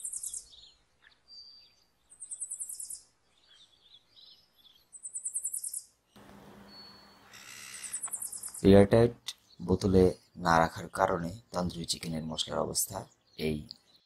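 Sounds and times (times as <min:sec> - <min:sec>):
bird trilling and chirping: 0:00.0 - 0:08.8.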